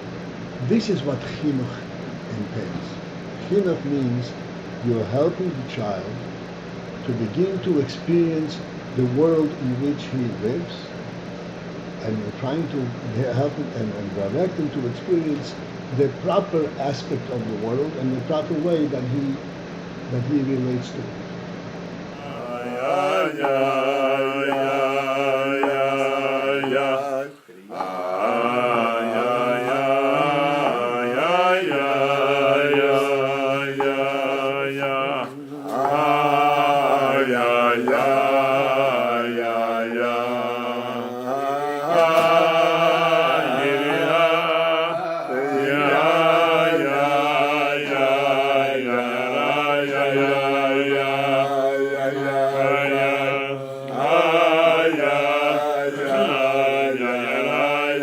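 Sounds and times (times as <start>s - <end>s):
chanted vocal melody: 22.0s - 58.0s
low drone: 22.0s - 58.0s.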